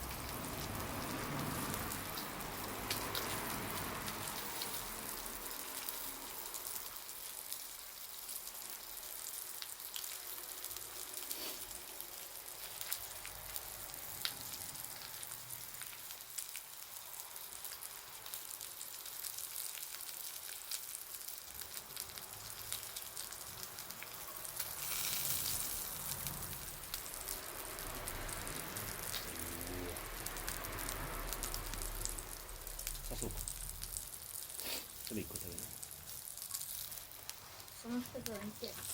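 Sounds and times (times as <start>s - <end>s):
bonfire crackling and popping: 0.0s - 38.9s.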